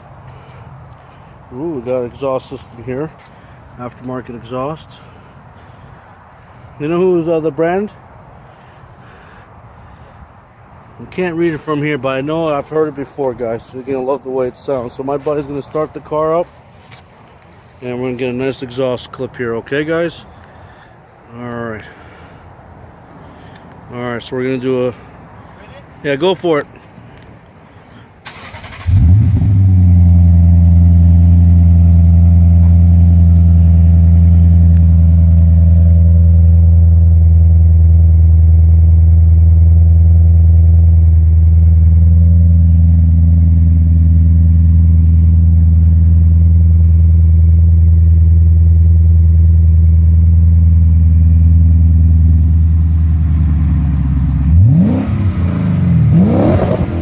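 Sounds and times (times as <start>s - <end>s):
car engine cranking and starting: 28.2s - 35.4s, 50.7s - 57.0s
car engine idling: 28.3s - 57.0s
car engine revving: 28.3s - 57.0s.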